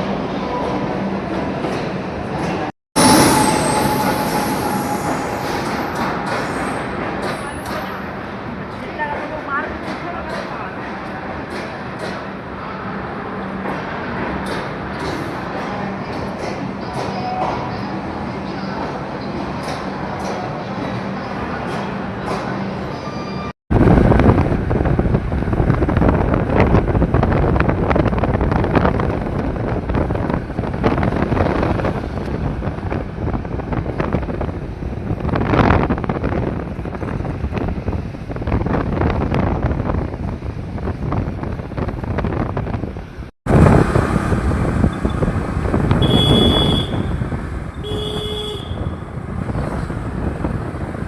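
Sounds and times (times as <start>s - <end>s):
wind buffeting microphone: 23.7s - 47.8s, 48.7s - 51.0s
vehicle rumble: 23.7s - 51.0s
horn toots: 45.9s - 47.2s, 47.8s - 49.0s.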